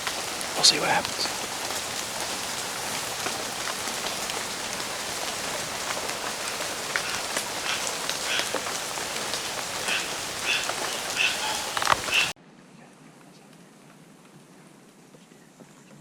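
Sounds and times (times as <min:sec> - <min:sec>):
rain falling steadily: 0:00.0 - 0:12.4.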